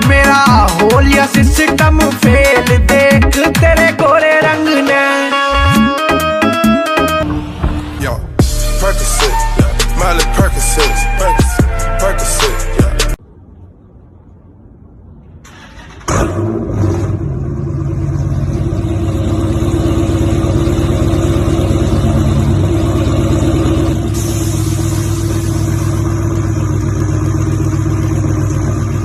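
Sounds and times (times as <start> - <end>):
car engine running: 7.2 - 10.6, 16.2 - 29.0.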